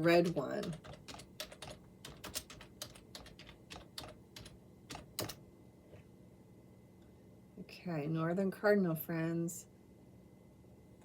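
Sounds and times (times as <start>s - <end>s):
keyboard typing: 0.0s - 5.4s.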